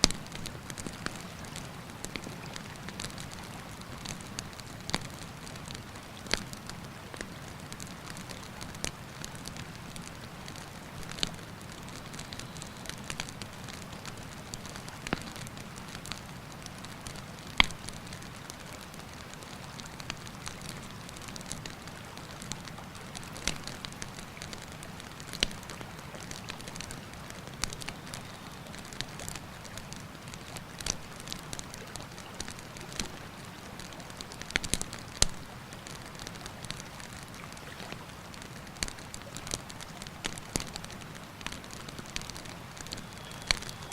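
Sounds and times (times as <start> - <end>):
campfire crackling: 0.0 - 43.9
burning wood popping: 17.5 - 18.6, 22.4 - 29.8, 36.6 - 43.9.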